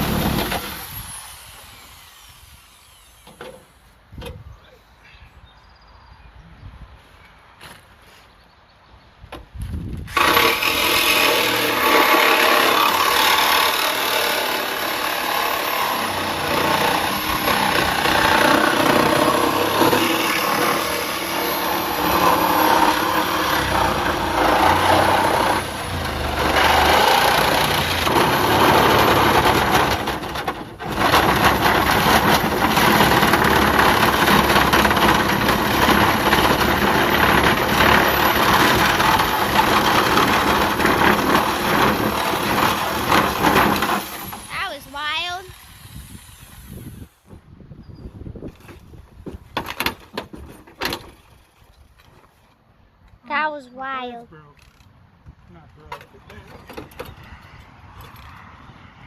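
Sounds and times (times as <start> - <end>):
reciprocating saw cutting steel: 0.0 - 3.6, 10.1 - 47.3.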